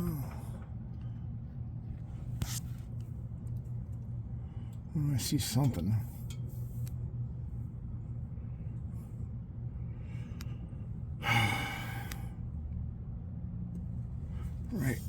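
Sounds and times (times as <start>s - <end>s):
steady low hum: 0.0s - 15.0s
man sighing: 11.2s - 12.3s.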